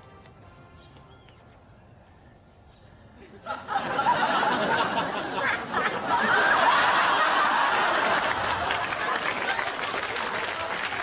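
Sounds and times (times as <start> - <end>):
studio audience laughing: 3.3 - 10.4.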